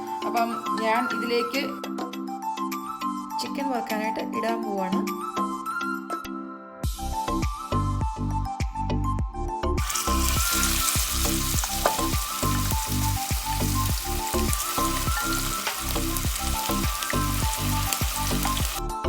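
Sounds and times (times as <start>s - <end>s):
chicken sizzling in oil: 0.0s - 0.8s, 9.8s - 18.8s
background music with beat: 0.0s - 4.0s, 5.0s - 19.0s.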